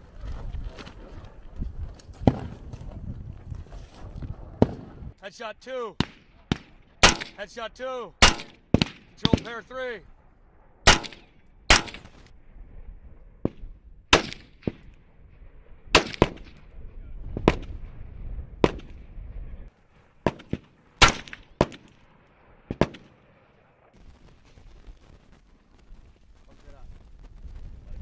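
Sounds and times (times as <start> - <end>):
rifle shots: 6.0 - 7.5, 8.2 - 9.6, 10.8 - 12.3, 13.4 - 15.0, 15.9 - 16.7, 17.4 - 18.0, 18.6 - 19.0, 20.2 - 23.6.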